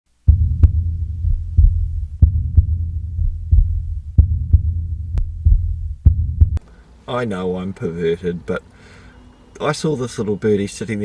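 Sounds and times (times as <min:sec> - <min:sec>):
low double-beat thumping: 0:00.1 - 0:06.6
steady low rumble: 0:00.1 - 0:07.0.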